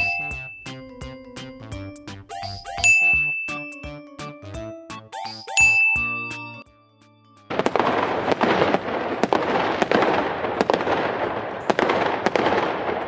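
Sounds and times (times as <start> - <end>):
firework crackling: 7.5 - 13.0.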